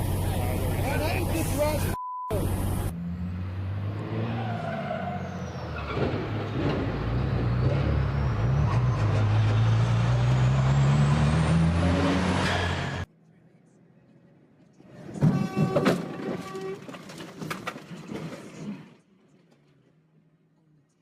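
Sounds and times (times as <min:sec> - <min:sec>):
truck engine revving: 0:00.0 - 0:13.1.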